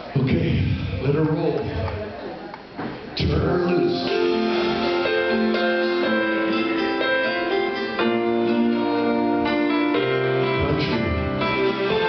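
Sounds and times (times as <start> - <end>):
country band playing: 3.2 - 12.0
keyboard: 3.2 - 12.0
bass line: 8.1 - 12.0.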